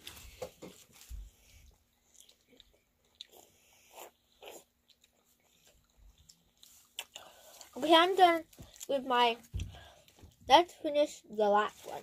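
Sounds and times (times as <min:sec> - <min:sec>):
person chewing: 0:01.3 - 0:07.8.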